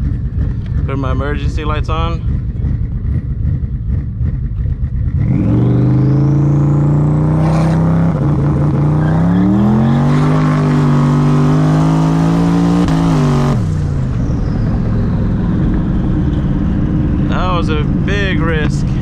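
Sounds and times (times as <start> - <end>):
car engine revving high: 5.1 - 14.0
tires spinning: 5.2 - 18.0.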